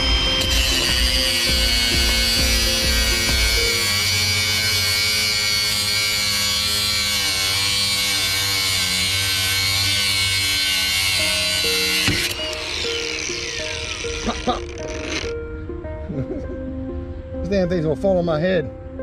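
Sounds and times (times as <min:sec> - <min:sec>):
angle grinder cutting steel: 0:00.0 - 0:15.4.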